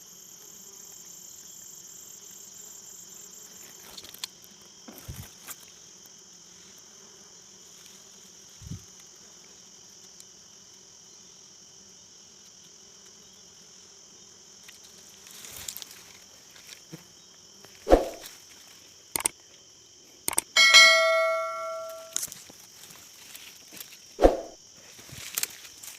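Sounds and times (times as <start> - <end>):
loud metallic clang: 20.6 - 22.2.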